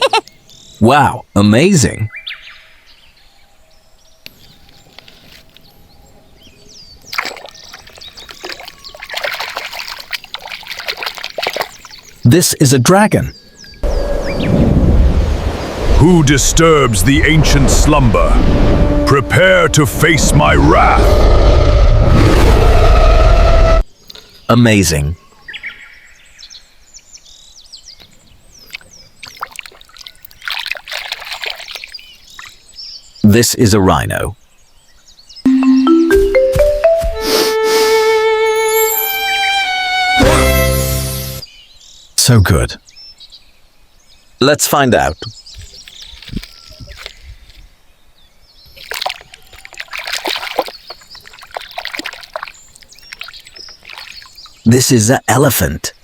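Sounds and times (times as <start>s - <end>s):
birds chirping: 0.0s - 14.7s, 23.9s - 36.6s, 41.4s - 56.0s
water splashing and trickling: 4.3s - 13.8s, 28.0s - 33.2s, 45.0s - 54.9s.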